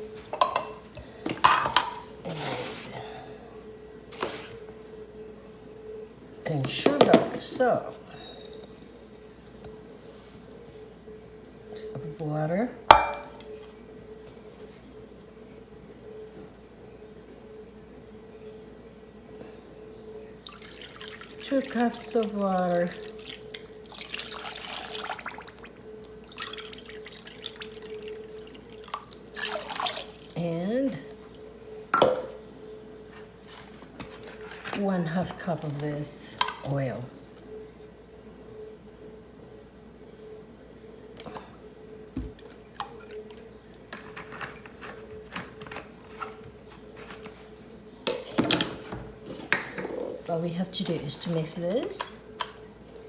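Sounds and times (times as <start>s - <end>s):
faint steady hum: 0.0s - 53.0s
kitchen utensils clattering: 0.2s - 3.0s, 12.9s - 13.4s, 43.9s - 47.4s, 48.1s - 52.2s
water pouring and splashing: 29.3s - 30.2s.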